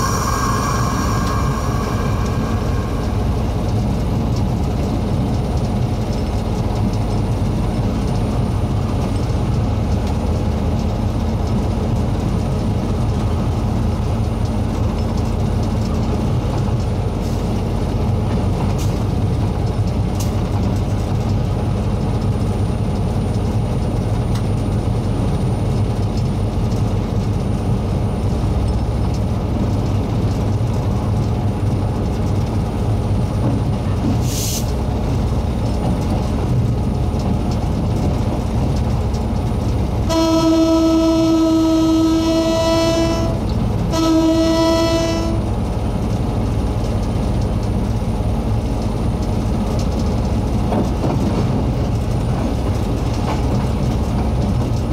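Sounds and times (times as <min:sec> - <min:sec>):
train rumbling: 0:00.0 - 0:54.9
locomotive horn blasts: 0:40.0 - 0:45.6.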